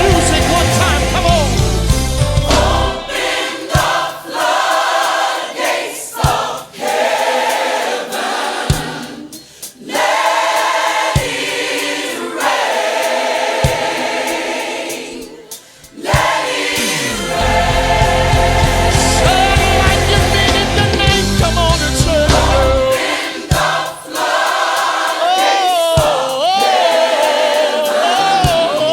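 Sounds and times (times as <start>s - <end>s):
low beat: 0.0s - 4.0s, 16.2s - 23.0s
backing music: 0.0s - 28.9s
choir singing: 0.0s - 28.9s.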